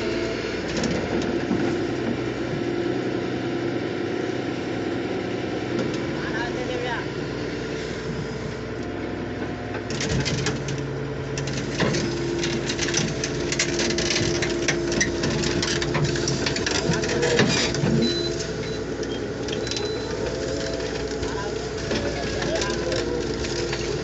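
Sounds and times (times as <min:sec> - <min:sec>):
bulldozer engine running: 0:00.0 - 0:24.0
metallic clanking and rattling: 0:11.4 - 0:24.0.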